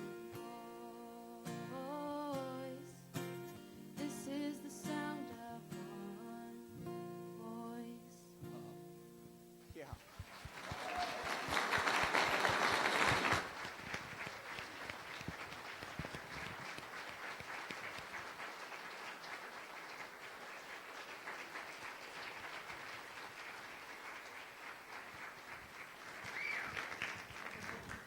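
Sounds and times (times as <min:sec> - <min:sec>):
people clapping: 0:09.7 - 0:28.0.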